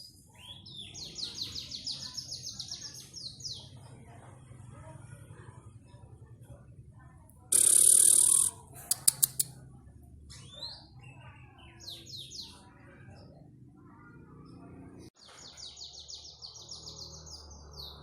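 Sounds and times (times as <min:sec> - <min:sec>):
canary singing chirps and trills: 0:00.0 - 0:03.8, 0:07.5 - 0:09.5, 0:10.3 - 0:13.4
sharp ticks: 0:07.5 - 0:09.5.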